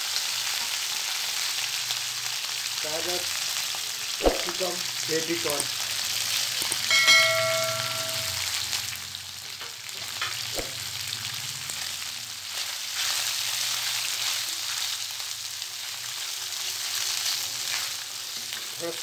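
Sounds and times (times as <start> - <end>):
food sizzling in hot oil: 0.0 - 19.0
short ringing clink: 6.9 - 8.5.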